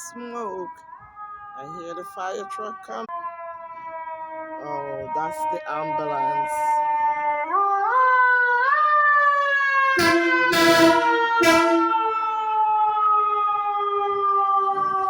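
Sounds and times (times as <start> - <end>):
ambulance siren wailing: 0.0 - 15.0
loud horn blasts: 9.9 - 12.6.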